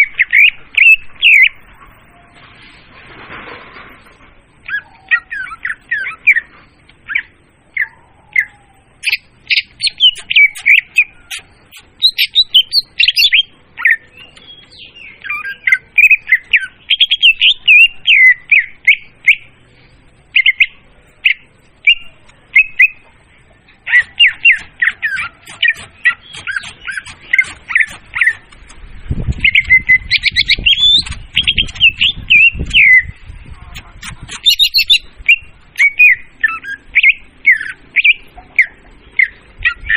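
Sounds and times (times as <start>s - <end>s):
bird singing: 0.0s - 2.4s, 4.6s - 39.9s.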